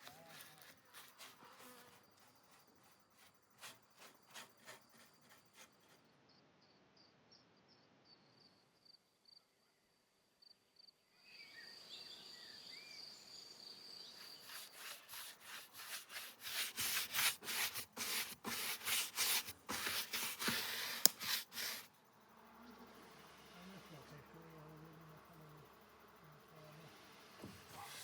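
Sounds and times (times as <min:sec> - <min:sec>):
rubbing on wooden beehive: 0:00.0 - 0:06.0, 0:14.2 - 0:21.9, 0:27.4 - 0:28.0
insect chirping: 0:10.4 - 0:16.2.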